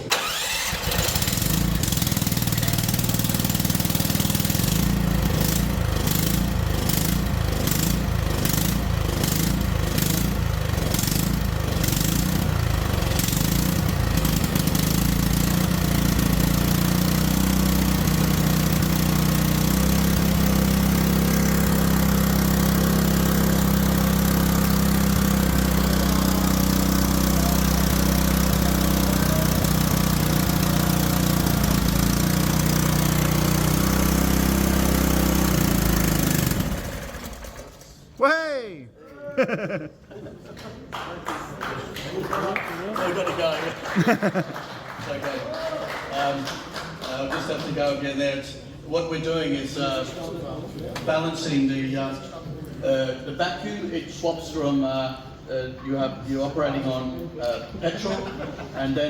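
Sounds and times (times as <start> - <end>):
small petrol engine running: 0.0 - 38.0.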